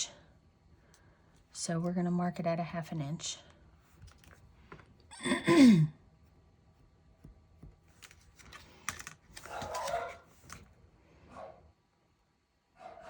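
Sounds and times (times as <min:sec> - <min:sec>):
paper rustling: 0:07.6 - 0:10.7.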